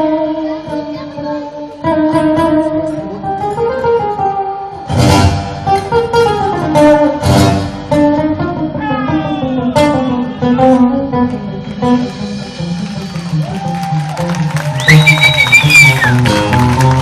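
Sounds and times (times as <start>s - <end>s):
strummed guitar chords: 0.0s - 13.4s
live band instrumental: 0.0s - 17.0s.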